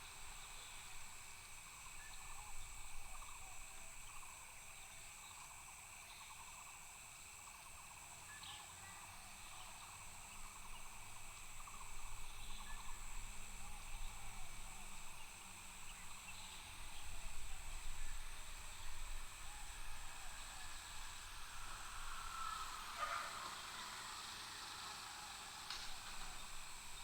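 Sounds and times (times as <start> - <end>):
high-pitched insect trills: 0.0 - 27.0
short pulsed animal calls: 19.4 - 26.9.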